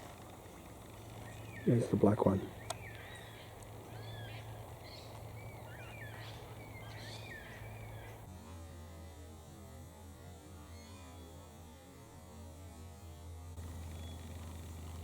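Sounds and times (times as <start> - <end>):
birds warbling: 0.0 - 8.3
steady low hum: 0.0 - 15.0.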